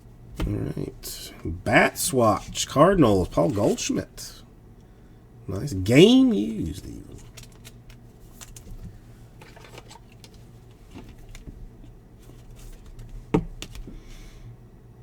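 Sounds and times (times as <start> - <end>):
trading cards clicking and rustling: 2.3 - 4.4, 6.6 - 11.6, 12.2 - 14.0.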